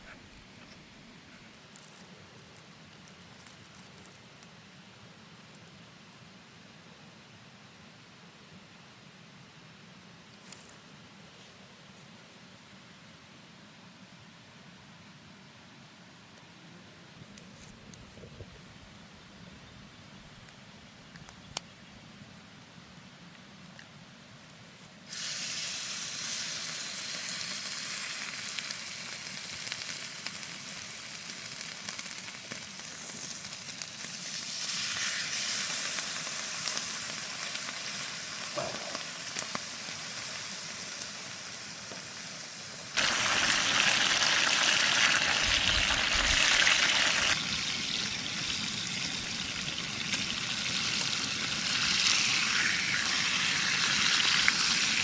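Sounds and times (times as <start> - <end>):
steak sizzling in a frying pan: 25.1 - 55.0.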